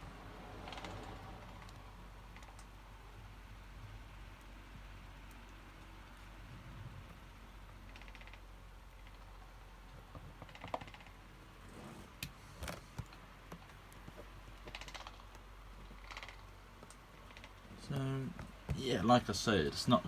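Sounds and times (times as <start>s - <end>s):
faint clicks and taps: 12.2s - 18.9s.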